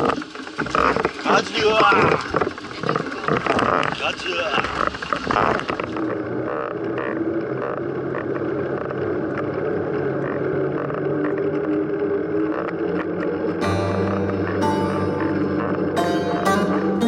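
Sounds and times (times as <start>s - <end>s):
plucked string music: 13.6s - 17.0s.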